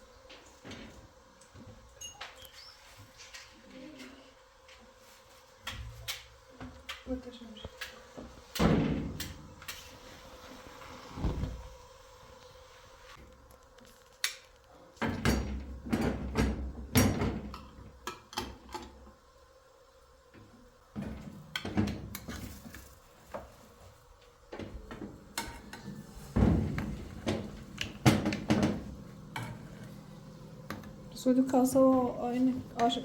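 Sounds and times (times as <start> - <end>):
objects knocking and clattering: 24.6 - 29.7.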